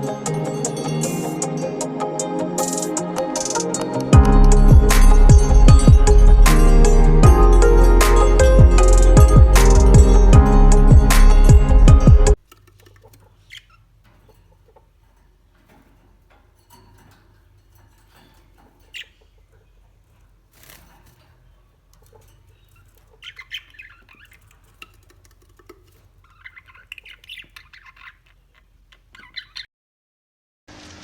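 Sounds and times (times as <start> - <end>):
budgerigars chattering and chirping: 12.8 - 15.0, 18.0 - 20.8, 21.5 - 29.7.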